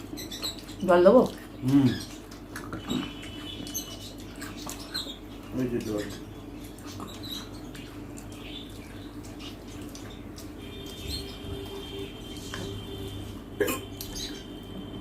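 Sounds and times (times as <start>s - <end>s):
faint eating clicks: 0.0s - 14.3s
steady low hum: 6.1s - 15.0s.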